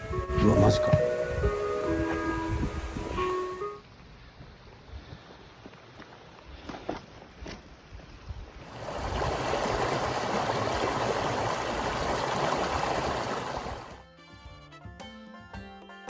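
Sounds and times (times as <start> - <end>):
music: 0.0 - 3.8, 13.9 - 16.0
mountain stream flowing: 0.4 - 14.0.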